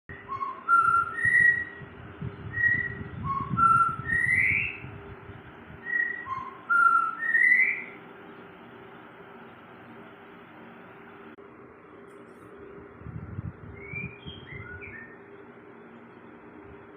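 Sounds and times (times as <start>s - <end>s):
songbird whistling: 0.1s - 5.0s, 5.8s - 8.0s, 13.6s - 15.4s.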